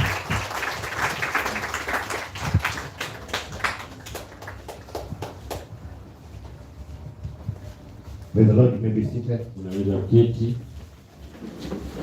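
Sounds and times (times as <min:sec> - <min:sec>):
congregation hand claps: 0:00.0 - 0:05.7.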